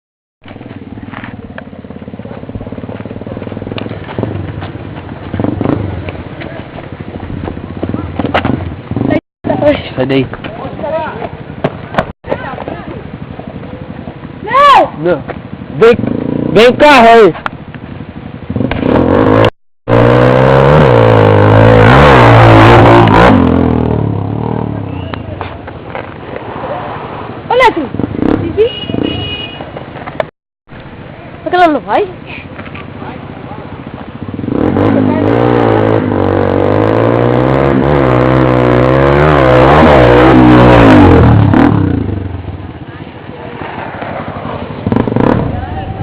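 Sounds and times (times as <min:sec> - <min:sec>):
vehicle engine running: 0:00.4 - 0:20.0
motorcycle engine revving: 0:00.5 - 0:25.2, 0:26.0 - 0:30.3, 0:32.8 - 0:46.0.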